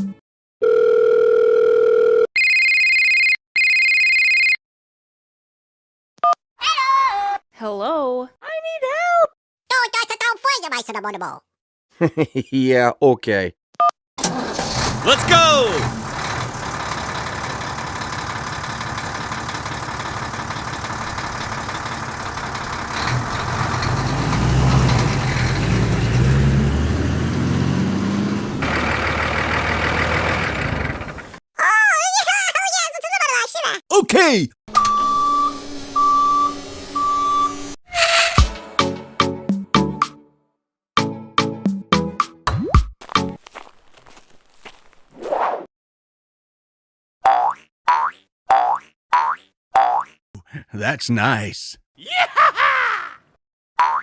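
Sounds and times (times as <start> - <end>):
electronic telephone rings: 0.6 - 4.6
telephone dial tone: 0.6 - 4.6
vehicle engine running: 14.2 - 31.4
deep engine rumble: 14.7 - 31.4.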